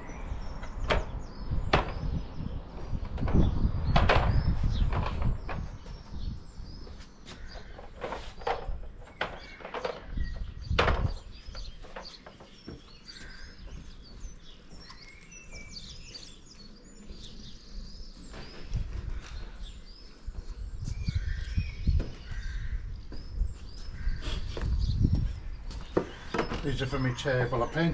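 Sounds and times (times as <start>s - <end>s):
small birds chirping: 0.0s - 27.9s
knocks and thuds: 0.9s - 6.0s, 7.4s - 12.9s.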